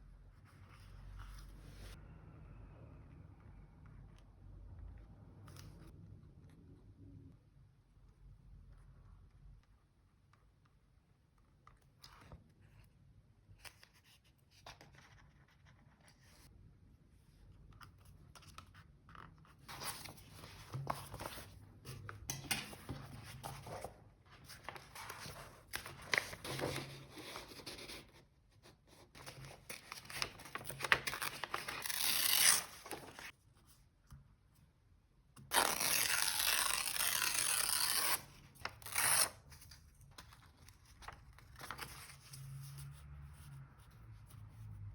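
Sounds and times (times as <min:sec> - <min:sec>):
paper rustling and crinkling: 0:18.0 - 0:28.1, 0:29.0 - 0:33.4, 0:35.6 - 0:42.8
paper tearing: 0:30.2 - 0:33.3, 0:35.5 - 0:39.4.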